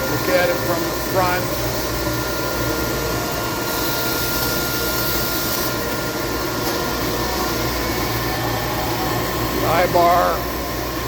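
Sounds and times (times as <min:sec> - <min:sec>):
grinding machine hum: 0:00.0 - 0:11.0.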